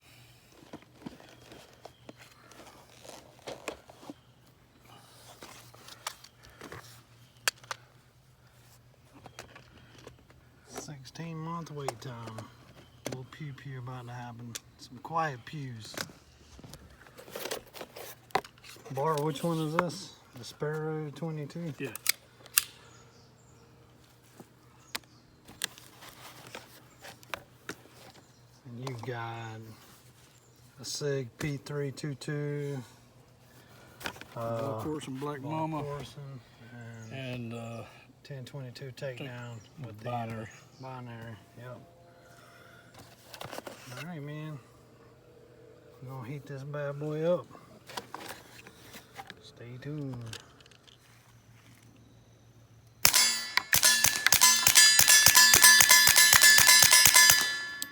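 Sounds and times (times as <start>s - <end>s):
rustling: 0.1s - 10.8s, 25.4s - 28.4s, 47.7s - 49.4s
sharp clicks: 53.0s - 57.9s.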